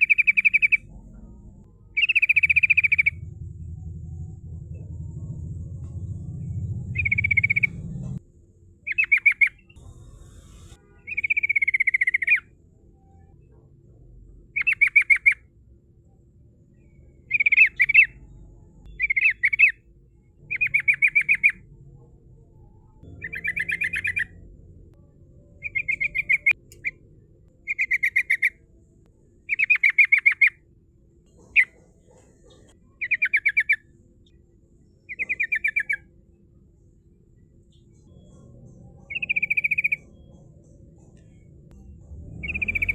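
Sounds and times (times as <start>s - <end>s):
bulbul singing: 0.0s - 8.2s, 8.9s - 12.5s, 18.9s - 19.8s, 20.4s - 21.6s, 23.0s - 28.6s, 35.1s - 36.1s, 37.7s - 41.6s, 42.4s - 42.9s.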